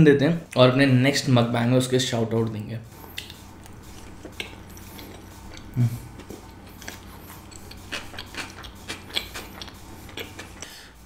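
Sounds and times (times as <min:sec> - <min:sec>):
person chewing with wet clicks: 0:03.1 - 0:10.7
person humming briefly: 0:05.7 - 0:06.1.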